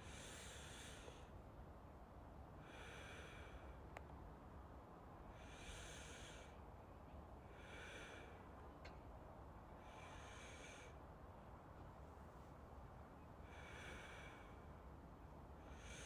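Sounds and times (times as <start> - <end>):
soft breathing: 0.0 - 1.4, 2.6 - 3.9, 5.2 - 6.7, 7.4 - 8.8, 9.7 - 11.1, 13.4 - 16.0
faint background hiss: 0.0 - 16.0.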